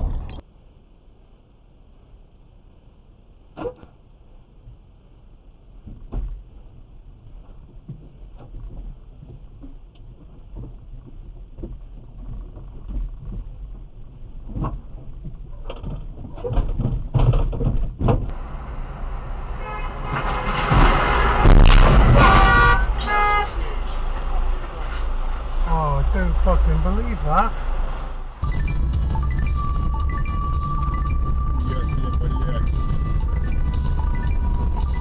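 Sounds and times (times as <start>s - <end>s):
road traffic noise: 0.0s - 0.4s, 18.3s - 35.0s
car engine idling: 18.3s - 35.0s.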